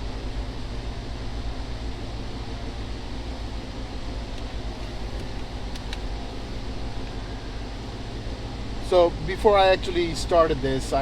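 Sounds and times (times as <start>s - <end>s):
low mechanical hum: 0.0s - 11.0s
faint clicks: 4.4s - 6.1s.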